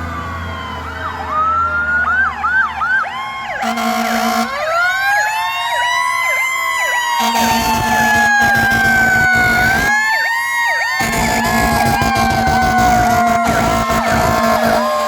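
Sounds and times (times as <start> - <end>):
fire engine sirens wailing and yelping: 0.0 - 15.0
truck engine rumble: 7.1 - 15.0.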